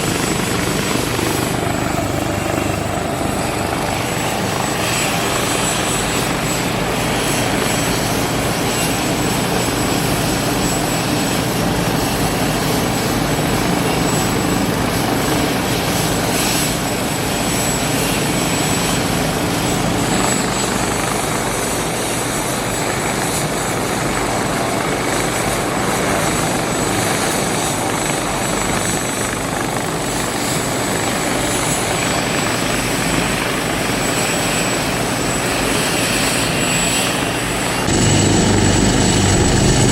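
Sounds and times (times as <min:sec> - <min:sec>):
helicopter rotor and engine: 0:00.0 - 0:39.9
high steady whine: 0:37.8 - 0:39.9.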